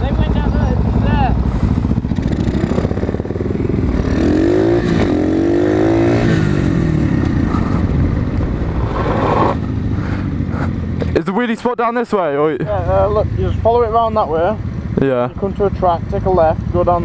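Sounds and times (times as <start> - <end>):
motorbike engine revving: 0.0 - 11.2.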